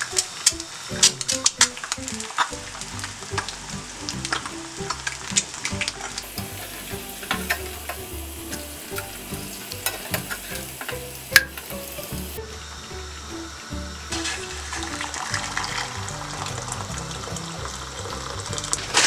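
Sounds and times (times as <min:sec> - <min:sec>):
crackling pops: 0:00.0 - 0:12.4
eggs sizzling in oil: 0:00.0 - 0:19.0.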